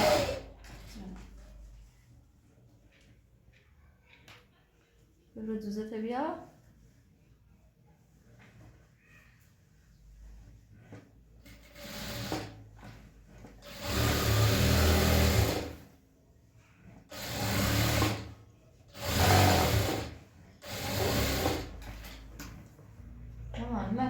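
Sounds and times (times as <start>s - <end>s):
sewing machine running: 0.0s - 0.5s, 11.6s - 12.6s, 13.6s - 15.9s, 17.1s - 18.3s, 18.9s - 22.2s.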